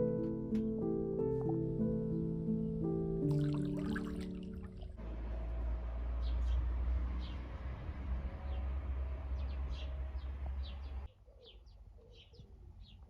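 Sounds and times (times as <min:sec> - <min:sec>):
small birds chirping: 0:08.3 - 0:13.0.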